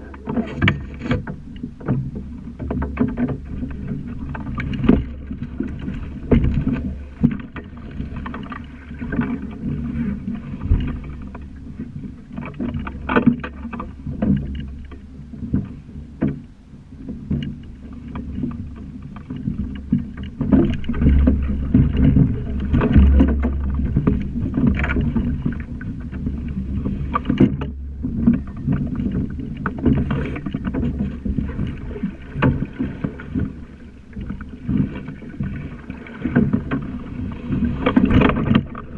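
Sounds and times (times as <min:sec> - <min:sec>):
water slapping against hull: 0:00.0 - 0:38.9
heavy low rumble: 0:18.6 - 0:34.6
irregular knocks: 0:20.0 - 0:26.1.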